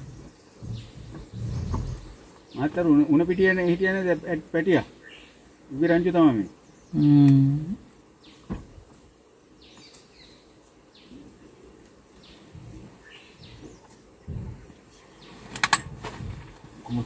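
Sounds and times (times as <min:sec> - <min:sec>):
low thumps: 0:00.0 - 0:03.0, 0:12.4 - 0:14.8
birds chirping: 0:00.0 - 0:17.0
rustling: 0:09.8 - 0:17.0.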